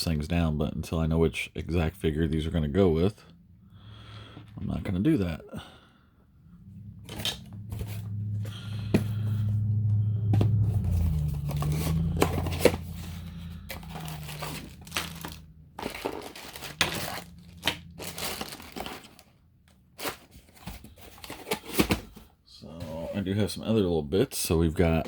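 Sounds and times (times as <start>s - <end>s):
low hum: 1.8s - 20.3s
packaging crinkling and rustling: 10.5s - 22.2s.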